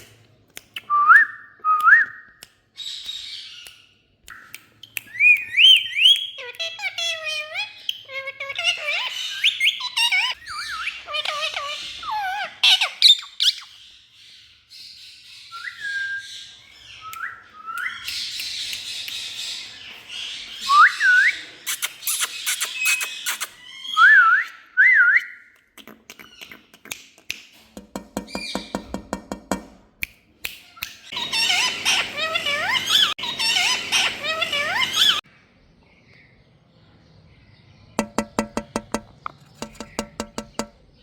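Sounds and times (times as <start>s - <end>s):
parakeet whistling and squawking: 5.1s - 13.8s, 31.0s - 35.2s.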